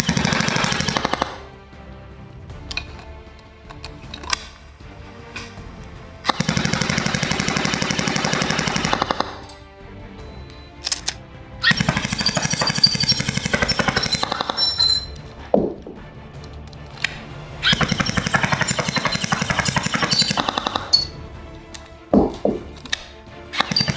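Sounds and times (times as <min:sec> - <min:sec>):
airsoft gun rapid firing: 0:10.8 - 0:11.2.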